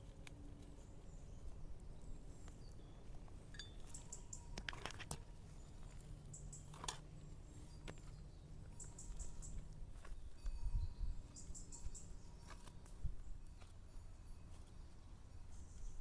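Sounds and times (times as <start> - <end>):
faint high-pitched chirps: 7.5 - 16.0.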